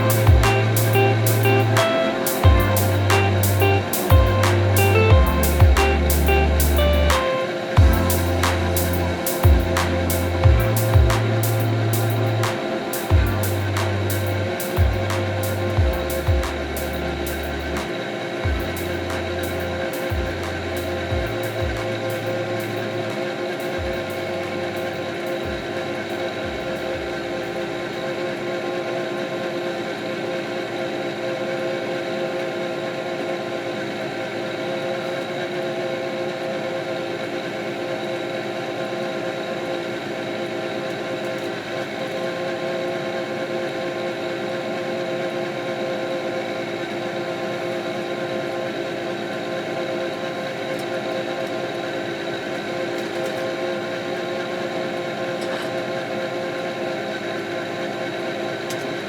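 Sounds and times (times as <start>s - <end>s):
diesel tractor droning: 0.0s - 27.9s
whining tones: 0.0s - 28.2s.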